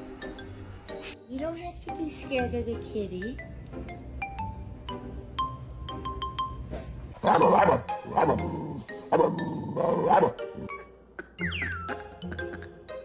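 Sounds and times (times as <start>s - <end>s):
music with mallet-like notes: 0.0s - 6.7s, 7.4s - 13.0s
dog barking loudly: 7.2s - 10.7s.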